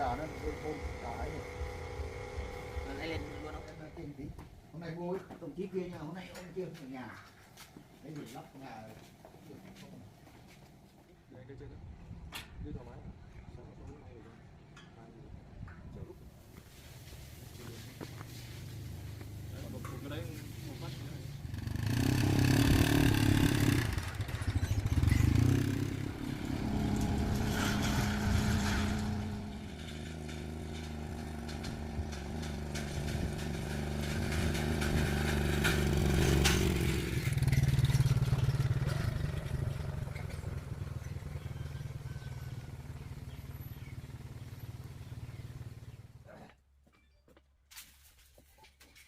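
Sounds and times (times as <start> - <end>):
motorbike engine revving: 0.0 - 4.2, 18.1 - 46.2.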